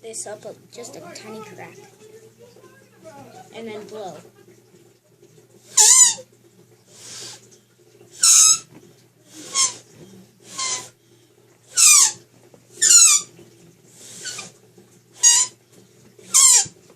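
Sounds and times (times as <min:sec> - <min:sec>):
shrill squeals from noise maker: 0:05.8 - 0:06.3, 0:08.2 - 0:08.7, 0:09.4 - 0:09.9, 0:10.5 - 0:11.0, 0:11.7 - 0:12.2, 0:12.8 - 0:13.3, 0:14.2 - 0:14.5, 0:15.2 - 0:15.6, 0:16.3 - 0:16.8.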